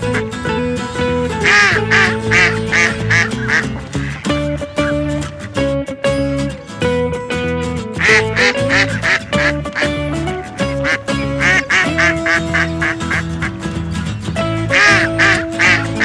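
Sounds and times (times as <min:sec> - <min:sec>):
background music: 0:00.0 - 0:16.0
short quacks: 0:01.4 - 0:05.3, 0:08.0 - 0:10.0, 0:10.6 - 0:13.7, 0:14.7 - 0:16.0.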